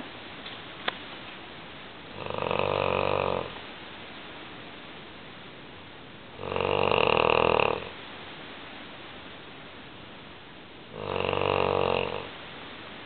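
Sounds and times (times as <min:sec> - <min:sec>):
dog snoring loudly: 0:02.1 - 0:03.6, 0:06.3 - 0:08.0, 0:10.9 - 0:12.4.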